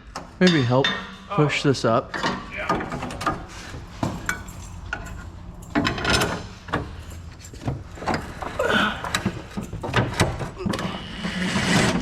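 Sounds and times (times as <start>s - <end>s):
metallic clicks and knocks of parts: 2.1s - 10.9s.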